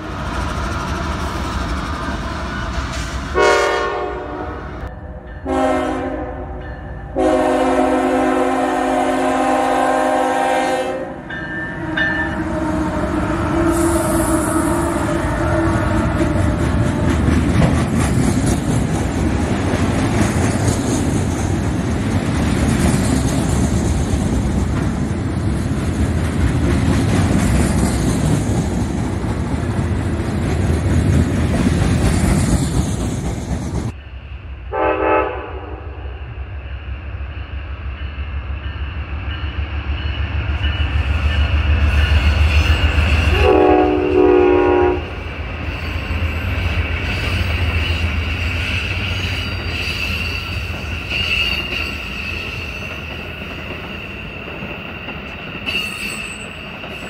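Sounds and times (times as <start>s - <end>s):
freight train wheel-and-rail noise: 0.0s - 57.0s
passenger train passing: 0.0s - 57.0s
train horn blasts: 3.3s - 16.2s, 34.7s - 36.2s, 43.1s - 45.2s.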